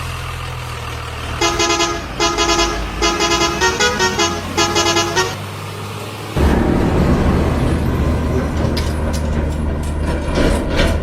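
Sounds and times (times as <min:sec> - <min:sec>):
low engine rumble: 0:00.0 - 0:11.0
truck horn warbling bursts: 0:01.4 - 0:05.4.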